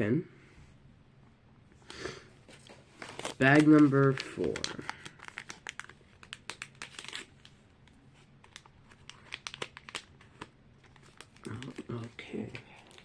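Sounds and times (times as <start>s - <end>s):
plastic bag crinkling: 2.8s - 7.6s, 8.4s - 13.0s.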